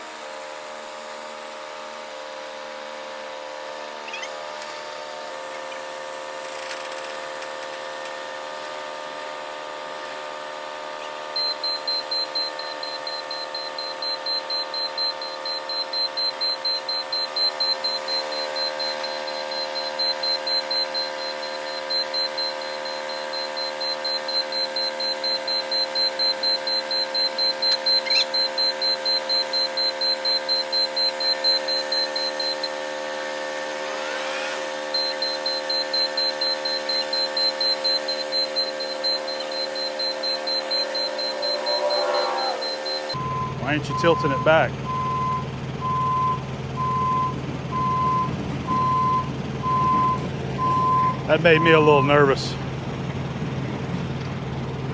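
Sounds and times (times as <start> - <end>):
forklift engine droning: 7.2 - 54.9
warning alarm beeping: 11.1 - 52.6.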